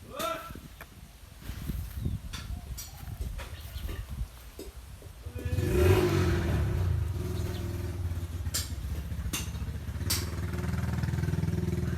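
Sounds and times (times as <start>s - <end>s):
small engine idling: 5.3s - 11.9s.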